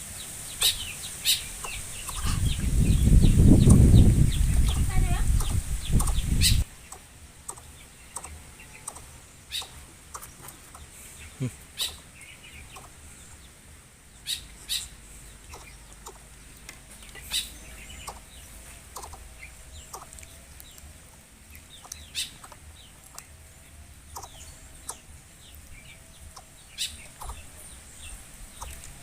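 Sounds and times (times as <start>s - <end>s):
faint chirps: 0.2s - 13.4s
bird clucking calls: 0.5s - 13.0s, 14.2s - 20.8s, 21.5s - 23.3s, 24.1s - 29.0s.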